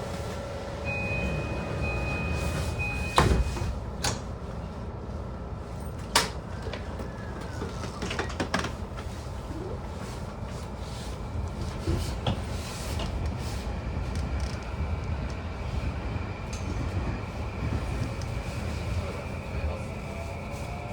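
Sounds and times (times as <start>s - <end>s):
train car low hum: 0.0s - 20.9s.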